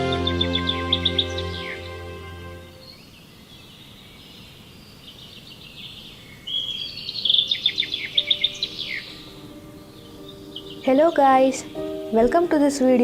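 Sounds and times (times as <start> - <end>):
quick chirps and whistled notes: 0.0 - 2.8
birds singing: 0.0 - 13.0.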